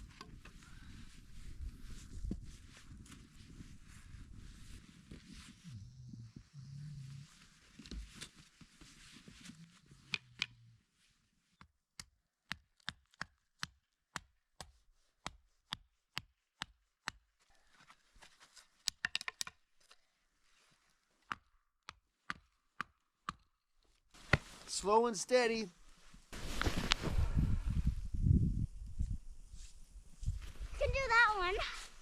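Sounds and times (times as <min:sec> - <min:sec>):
footsteps crunching in snow: 0:25.8 - 0:27.7.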